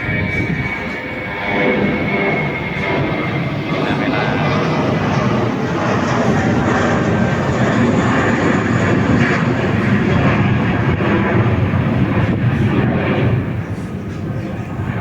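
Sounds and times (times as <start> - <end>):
high engine whine: 0.0 - 15.0
jet engines roaring: 0.0 - 15.0.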